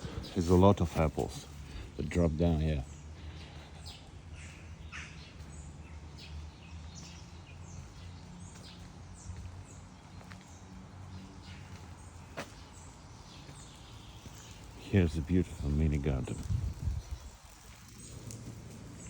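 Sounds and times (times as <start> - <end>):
low outdoor rumble: 0.0 - 7.8, 13.0 - 19.0
birds chirping: 0.0 - 19.0.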